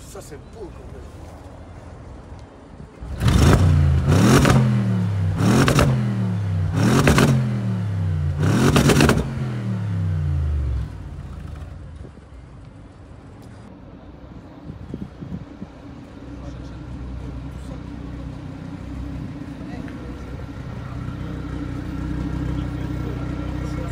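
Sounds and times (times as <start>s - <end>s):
car engine revving in blips: 3.1s - 11.8s.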